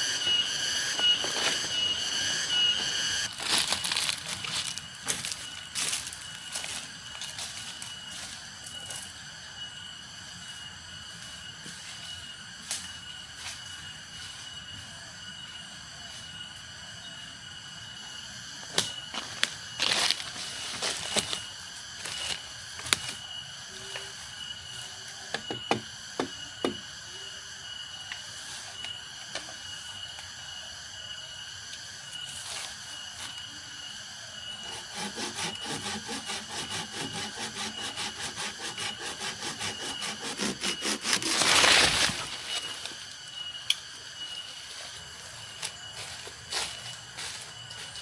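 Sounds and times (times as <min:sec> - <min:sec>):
faint steady high tone: 0:00.0 - 0:21.6, 0:22.2 - 0:35.8, 0:38.7 - 0:48.0
fast even sawing strokes: 0:34.6 - 0:42.2.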